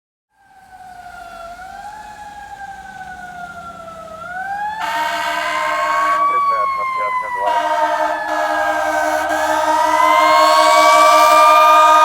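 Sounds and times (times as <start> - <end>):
fire engine siren wailing: 0.4 - 12.0
loud horn blast: 4.8 - 12.0.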